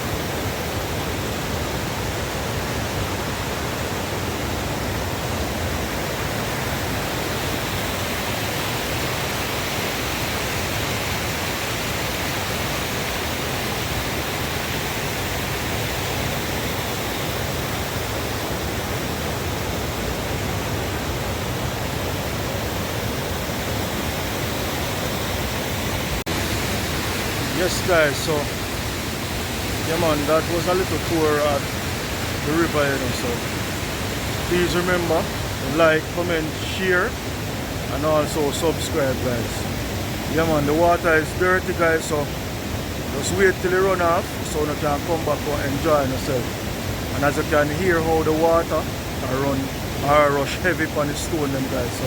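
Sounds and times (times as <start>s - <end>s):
river rushing over stones: 0.0s - 52.0s.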